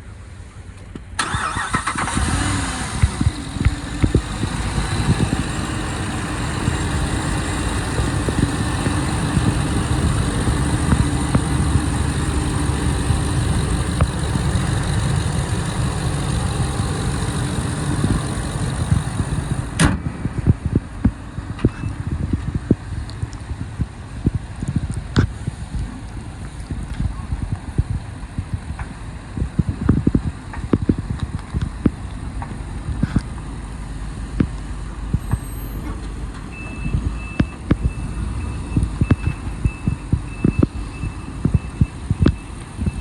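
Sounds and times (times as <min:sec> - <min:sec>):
engine cranking and idling: 0:01.2 - 0:19.9.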